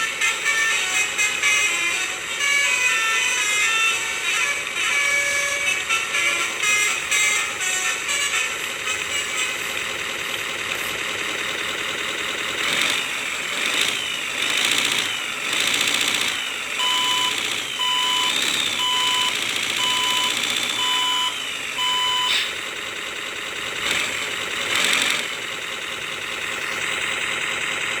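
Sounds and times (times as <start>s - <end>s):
simulated truck engine idling: 0.0s - 28.0s
reversing beeps: 14.8s - 22.6s.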